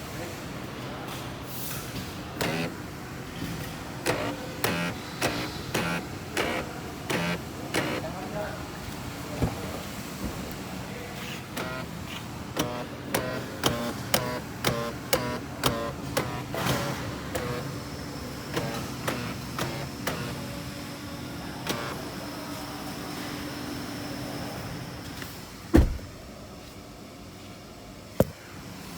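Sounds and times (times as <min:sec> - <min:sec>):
door lock actuators clicking: 0:04.0 - 0:08.0, 0:12.6 - 0:17.8.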